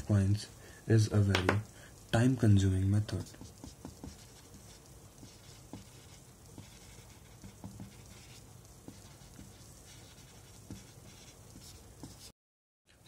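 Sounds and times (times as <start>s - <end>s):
pen writing taps and scratches: 3.1s - 12.3s.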